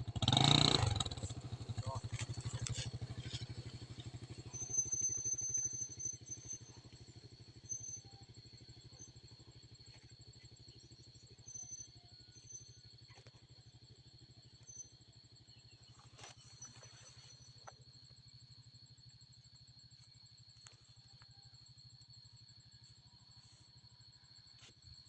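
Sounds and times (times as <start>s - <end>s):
small engine running: 0.0s - 8.6s.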